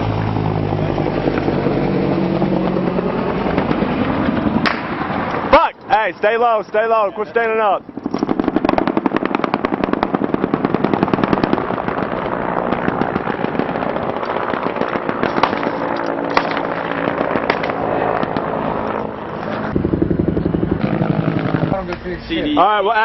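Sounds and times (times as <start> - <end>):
machine guns firing: 8.0 - 18.4.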